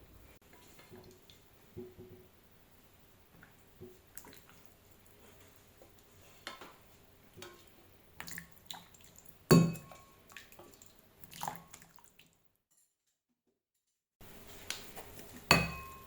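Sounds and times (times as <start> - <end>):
bowl and utensils clinking: 9.5 - 10.2, 15.5 - 16.0.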